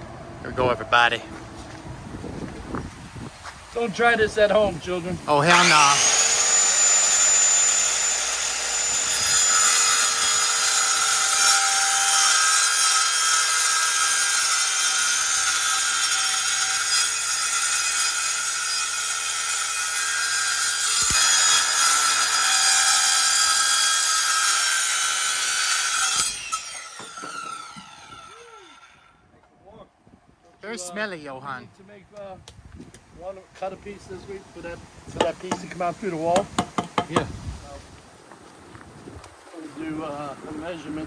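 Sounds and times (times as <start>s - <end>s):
power saw cutting: 5.3s - 29.1s.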